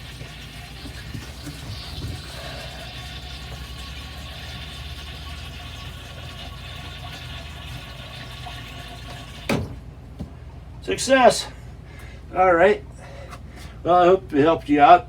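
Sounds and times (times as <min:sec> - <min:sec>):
water running into toilet bowl: 0:00.0 - 0:09.8.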